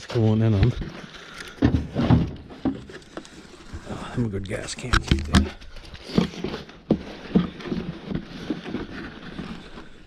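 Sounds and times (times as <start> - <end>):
knocks and clunks: 0.0 - 3.0, 4.5 - 8.8.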